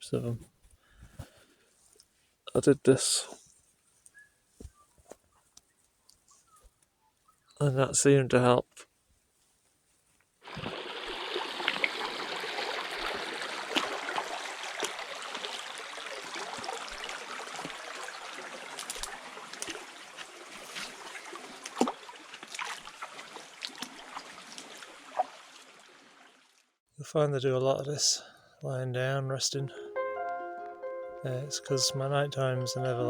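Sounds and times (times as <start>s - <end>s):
small stream trickling: 10.4s - 26.8s.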